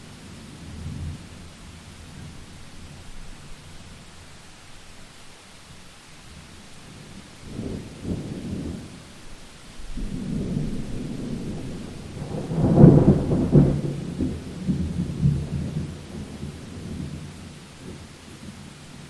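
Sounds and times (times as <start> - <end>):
steady rain: 0.0 - 19.0
thunder rumbling: 6.3 - 18.7.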